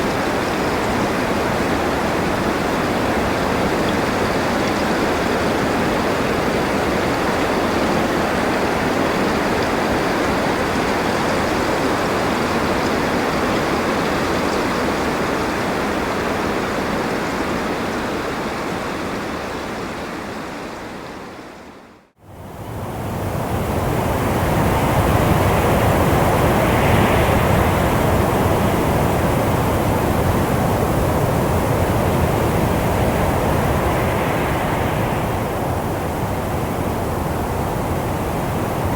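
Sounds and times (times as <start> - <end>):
rushing wind: 22.2 - 38.9.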